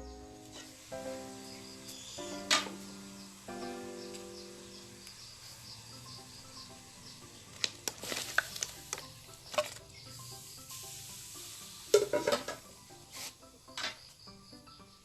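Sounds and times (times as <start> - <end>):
food sizzling: 0.0 - 15.0
utensil scraping food in pan: 0.5 - 0.9, 11.8 - 13.4.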